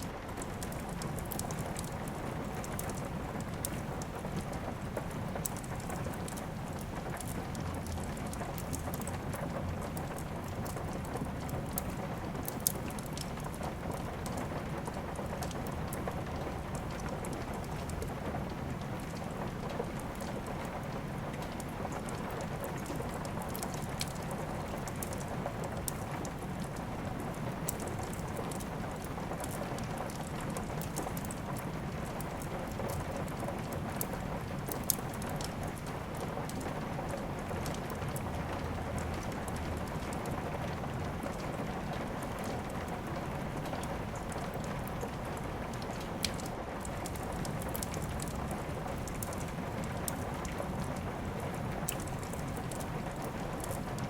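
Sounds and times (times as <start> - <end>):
steady rain: 0.0 - 54.0
fireplace crackling: 18.7 - 54.0.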